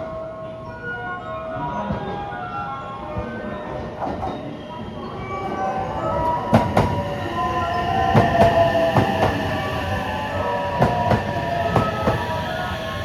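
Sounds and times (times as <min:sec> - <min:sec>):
train rumble: 0:03.9 - 0:13.0
whining tone: 0:05.2 - 0:13.0
train wheels clacking over rail joints: 0:06.0 - 0:13.0.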